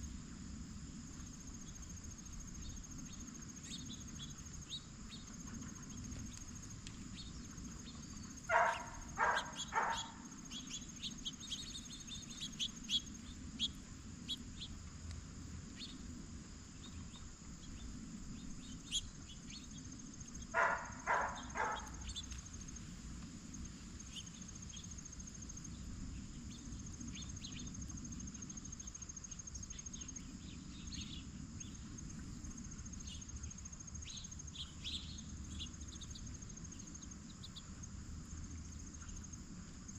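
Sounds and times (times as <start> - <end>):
crickets chirring: 0.0 - 39.9
small bird chirps: 2.6 - 6.5, 7.1 - 14.8, 15.8 - 16.0, 16.8 - 22.5, 33.0 - 37.7
blue jay harsh calls: 8.4 - 11.3, 20.6 - 22.3.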